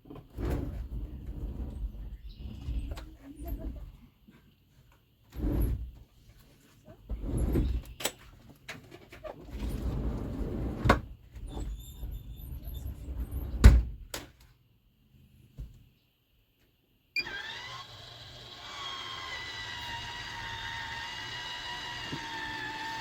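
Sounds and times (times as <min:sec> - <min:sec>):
rustling and scraping: 0:00.1 - 0:13.7.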